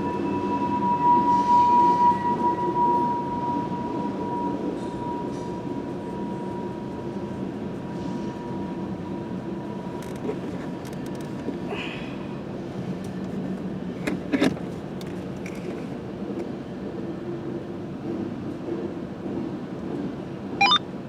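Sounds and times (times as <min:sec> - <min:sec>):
diesel locomotive engines droning: 0:00.0 - 0:21.0
steady high-pitched tone: 0:20.6 - 0:20.9.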